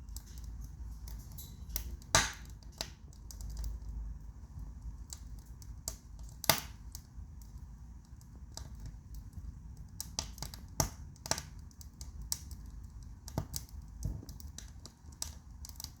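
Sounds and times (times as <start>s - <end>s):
low fire rumble: 0.0s - 16.0s
wood fire crackling: 0.0s - 16.0s.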